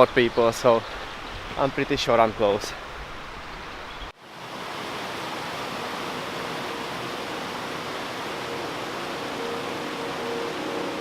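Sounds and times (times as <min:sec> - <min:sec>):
waterfall rushing: 0:04.2 - 0:11.0.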